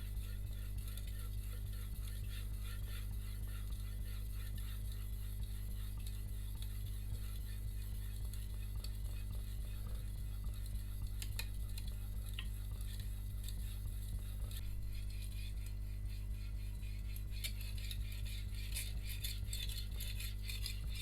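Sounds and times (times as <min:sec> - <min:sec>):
steady low hum: 0:00.0 - 0:21.0
blade scraping on whetstone: 0:14.5 - 0:21.0.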